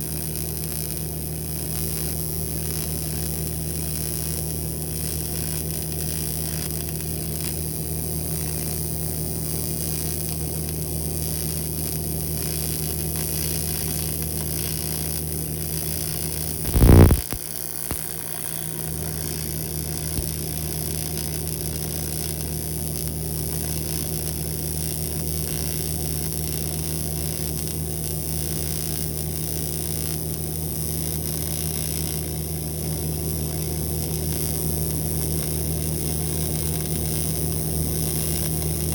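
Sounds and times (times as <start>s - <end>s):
welding arc buzz and hiss: 0.0s - 38.9s
loud pitched buzz: 16.7s - 17.4s.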